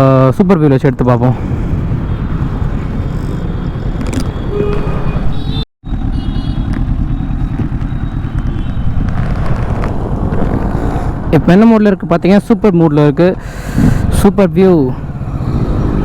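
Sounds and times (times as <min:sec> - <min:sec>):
wind rushing over microphone: 0:01.2 - 0:05.4, 0:06.6 - 0:12.8, 0:13.4 - 0:16.0
motorcycle engine running: 0:05.8 - 0:09.2.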